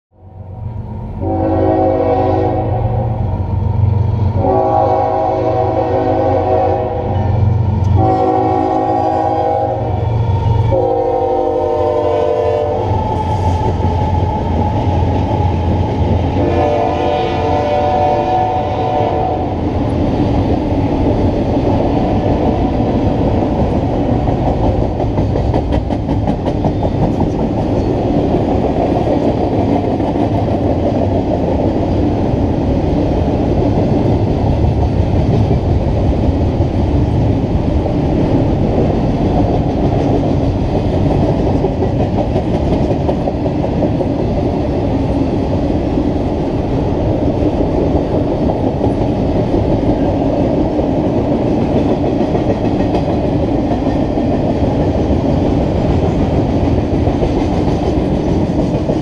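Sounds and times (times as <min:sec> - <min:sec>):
locomotive horn blasts: 0:01.2 - 0:03.2, 0:04.4 - 0:10.0, 0:10.6 - 0:12.9, 0:16.4 - 0:19.6
train wheels clattering: 0:19.5 - 0:37.2, 0:38.6 - 0:45.3, 0:47.3 - 0:59.0.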